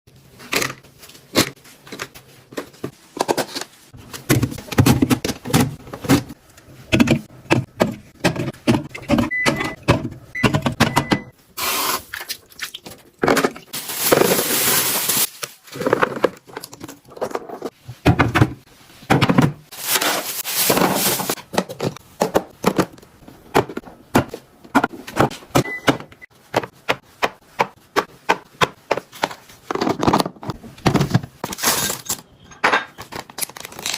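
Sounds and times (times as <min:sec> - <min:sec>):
plastic containers clicking and knocking: 0:04.2 - 0:11.3, 0:21.0 - 0:31.4.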